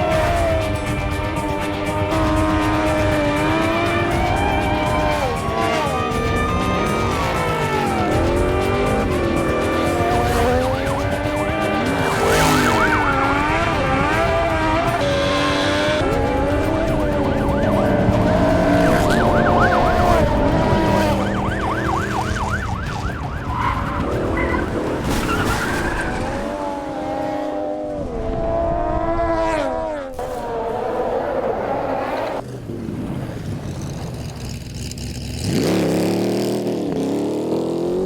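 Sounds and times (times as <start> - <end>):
police siren wailing: 0.0 - 27.6
car engines revving: 0.0 - 38.0.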